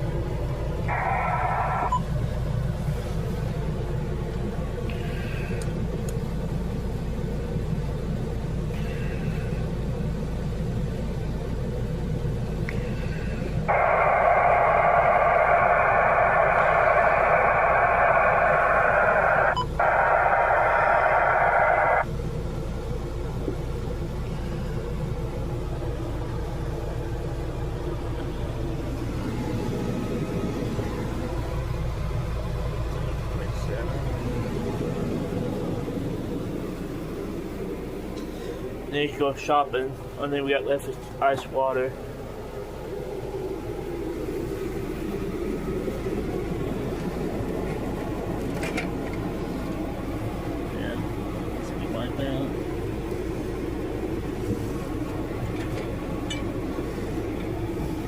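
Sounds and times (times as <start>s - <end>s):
low engine-like rumble: 0.0s - 58.0s
radio static hiss: 0.8s - 2.0s, 13.7s - 22.1s.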